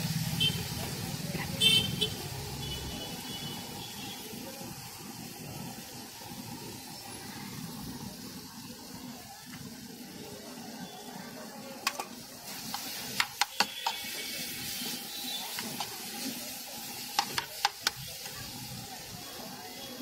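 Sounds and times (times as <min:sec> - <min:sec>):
food sizzling on a griddle: 0:00.0 - 0:20.0
spoon clicking on griddle: 0:11.8 - 0:14.1, 0:17.1 - 0:18.0.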